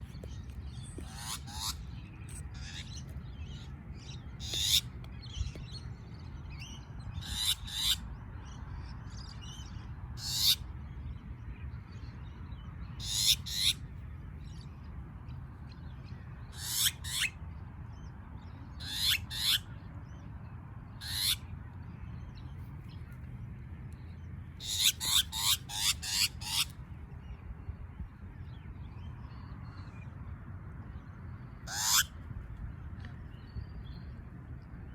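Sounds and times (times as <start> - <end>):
bird scolding calls: 1.0 - 1.8, 4.4 - 4.8, 24.6 - 26.7, 31.7 - 32.1.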